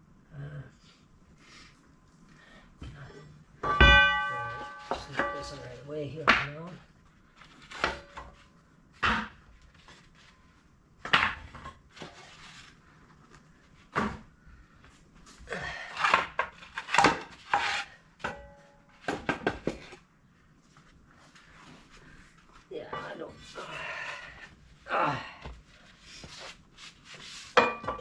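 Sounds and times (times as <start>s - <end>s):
metal knocks and clanks: 3.6s - 6.6s, 18.2s - 20.0s.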